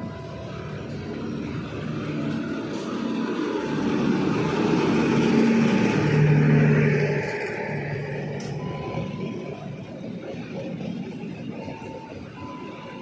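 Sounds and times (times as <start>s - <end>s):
low hum: 0.0s - 10.0s
train passing: 0.0s - 13.0s.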